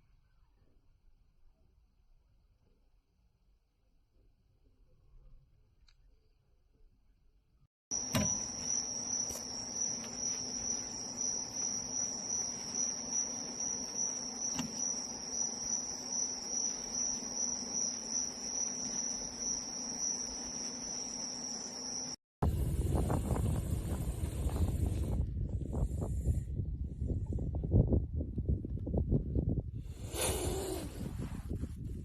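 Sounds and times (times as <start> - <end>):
high-pitched insect trill: 7.9 - 22.2.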